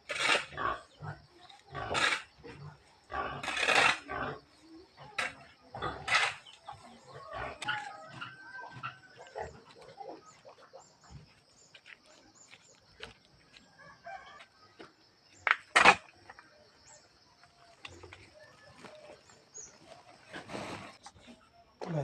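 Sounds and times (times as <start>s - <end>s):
farm animals harsh cries: 0.1s - 11.2s.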